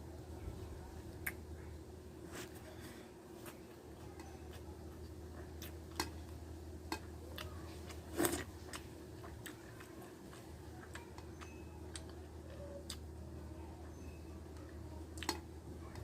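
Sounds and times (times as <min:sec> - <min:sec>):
faint steady hum: 0:00.0 - 0:16.0
chewing and food handling clicks: 0:04.2 - 0:13.1, 0:13.9 - 0:16.0.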